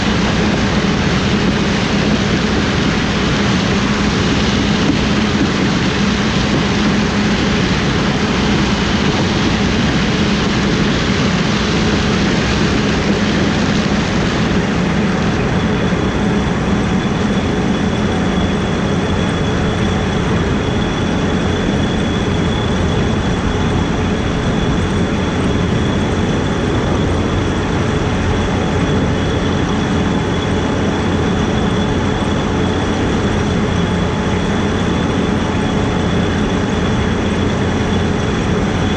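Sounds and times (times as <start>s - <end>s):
combine harvester running: 0.0s - 38.9s
high-pitched whine: 0.0s - 38.9s.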